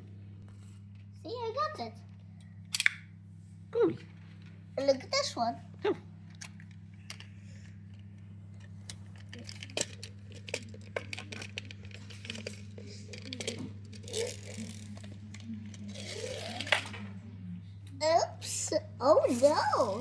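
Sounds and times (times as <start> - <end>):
steady low hum: 0.0 - 20.0
toy cars clicking and clinking: 9.2 - 17.0.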